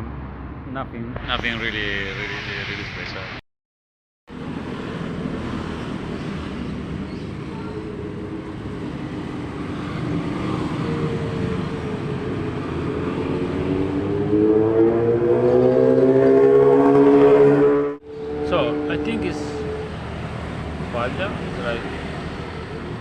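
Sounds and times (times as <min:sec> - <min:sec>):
road traffic: 0:00.0 - 0:03.4, 0:04.3 - 0:23.0
vehicle engine rising in pitch: 0:10.2 - 0:23.0.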